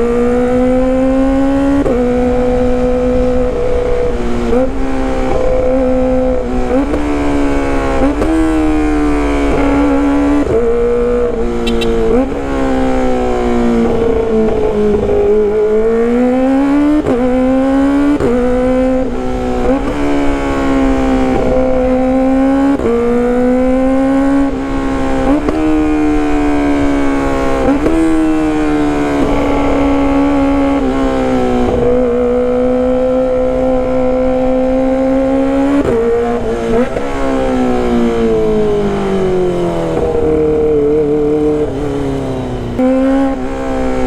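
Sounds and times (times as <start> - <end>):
motorcycle engine revving high: 0.0 - 44.0.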